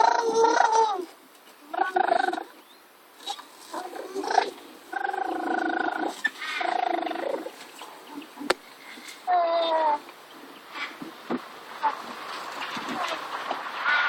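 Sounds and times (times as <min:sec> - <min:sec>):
toddler making wordless vocal sounds: 0:00.0 - 0:02.5, 0:09.2 - 0:10.1.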